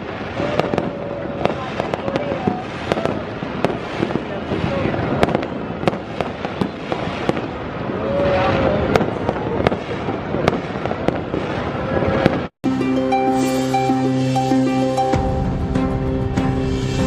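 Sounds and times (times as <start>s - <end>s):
fireworks bangs and crackles: 0.0s - 12.6s
music: 12.6s - 17.0s.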